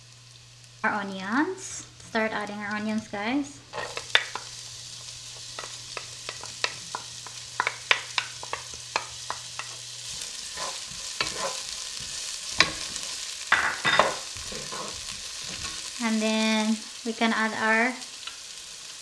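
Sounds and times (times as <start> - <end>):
onions sizzling in oil: 0.0 - 19.0
wooden spoon tapping and scraping: 3.8 - 4.6, 5.5 - 13.0.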